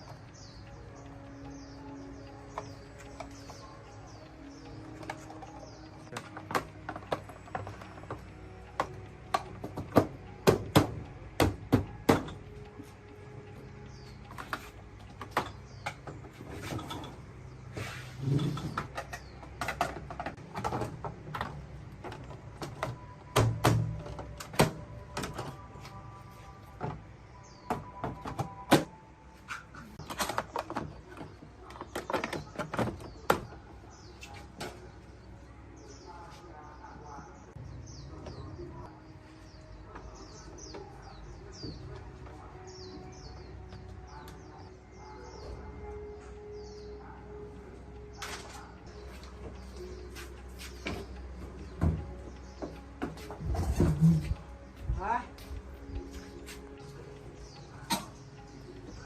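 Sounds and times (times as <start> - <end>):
small birds chirping: 0.0 - 59.0
tools clicking and knocking: 4.9 - 12.5, 18.5 - 25.6.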